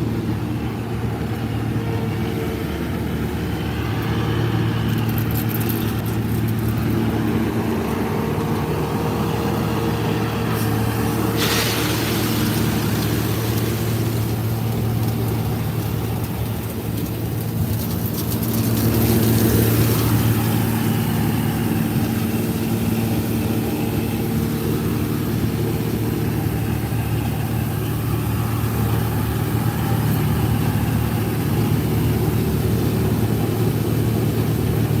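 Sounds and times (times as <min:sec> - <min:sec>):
diesel machinery engine drone: 0:00.0 - 0:35.0
hissing rush: 0:10.4 - 0:15.0.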